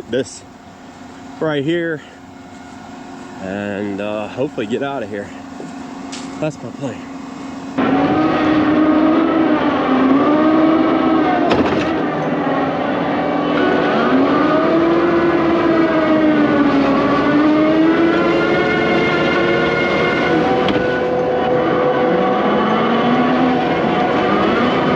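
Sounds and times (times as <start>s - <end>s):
excavator engine droning: 0.0s - 24.9s.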